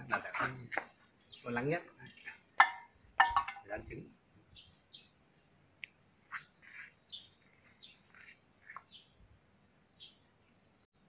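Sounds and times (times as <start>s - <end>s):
faint bird chirps: 3.6s - 9.3s, 9.9s - 10.7s.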